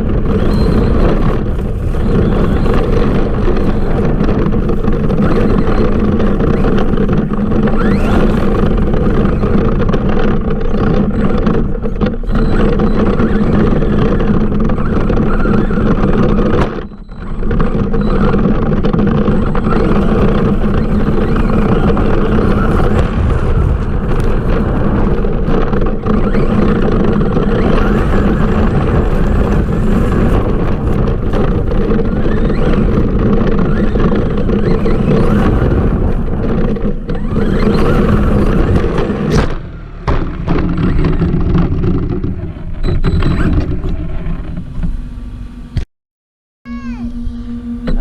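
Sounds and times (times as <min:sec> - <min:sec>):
toy truck electric motor running: 0:00.2 - 0:16.6, 0:17.3 - 0:23.0, 0:25.5 - 0:39.2
steady hum: 0:46.7 - 0:48.0.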